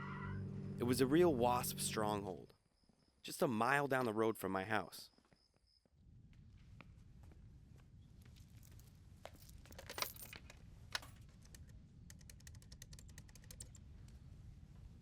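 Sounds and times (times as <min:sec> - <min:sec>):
faint low hum: 0:00.0 - 0:05.1
coins clinking into payphone: 0:09.7 - 0:10.4
small evenly spaced clicks: 0:10.9 - 0:14.2.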